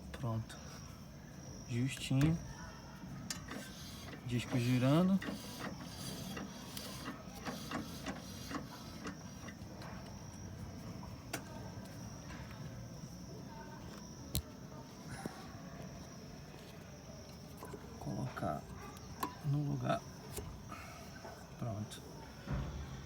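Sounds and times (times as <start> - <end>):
brake disc clicking and rubbing: 1.6 - 12.7, 16.6 - 21.8.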